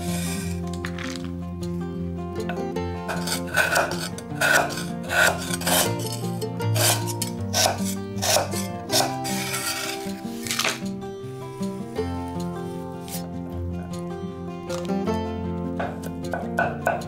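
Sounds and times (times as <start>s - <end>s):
cleaver scraping sugar: 0.0s - 1.3s, 3.1s - 13.3s
background music: 0.0s - 17.0s
cleaver hitting wooden board: 6.9s - 9.6s, 15.8s - 17.0s.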